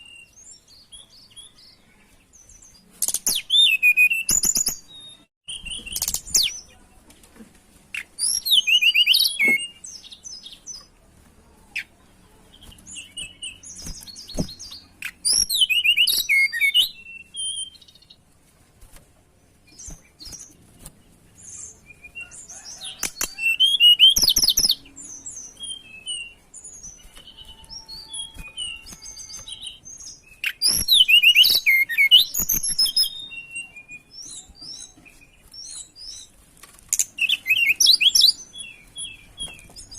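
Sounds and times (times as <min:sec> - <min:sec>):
soft bird chirps: 0:19.4 - 0:39.9.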